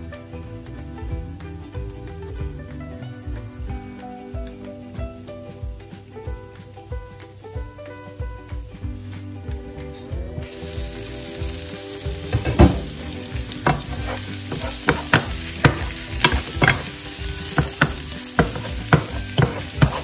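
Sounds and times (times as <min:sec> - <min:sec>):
shrimp sizzling in a pan: 0:10.4 - 0:20.0
wooden spatula scraping a pan: 0:12.3 - 0:20.0.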